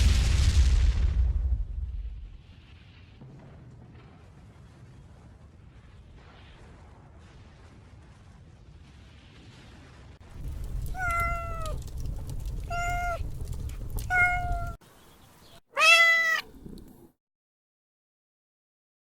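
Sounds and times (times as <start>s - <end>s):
low rumbling noise: 10.2s - 15.0s
cat meowing: 10.8s - 14.8s, 15.8s - 17.1s.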